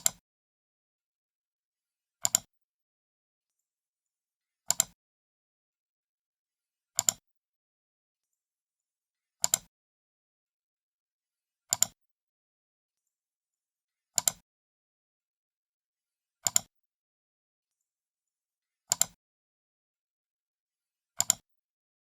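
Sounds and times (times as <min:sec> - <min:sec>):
computer mouse button clicks: 0:00.0 - 0:00.2, 0:07.0 - 0:07.2, 0:09.4 - 0:09.7, 0:11.7 - 0:12.0, 0:18.9 - 0:19.2, 0:21.2 - 0:21.4.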